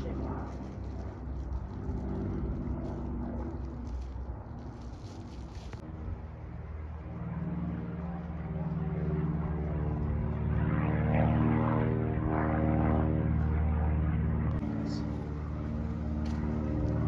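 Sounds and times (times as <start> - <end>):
propeller airplane engine droning: 0.0 - 17.0.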